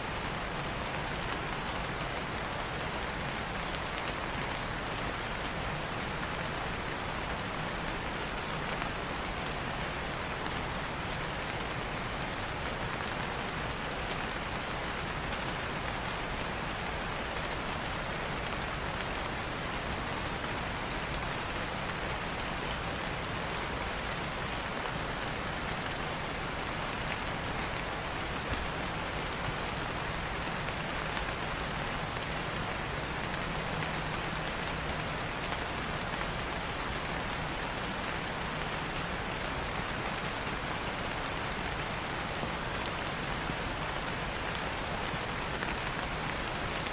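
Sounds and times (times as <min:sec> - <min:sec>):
rain falling on foliage: 0:00.0 - 0:46.9.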